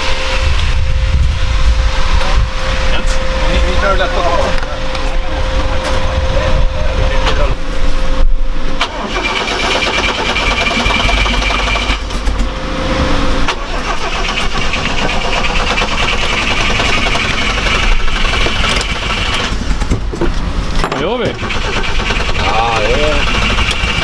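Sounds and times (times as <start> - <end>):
engine starter whine: 0.0 - 24.0.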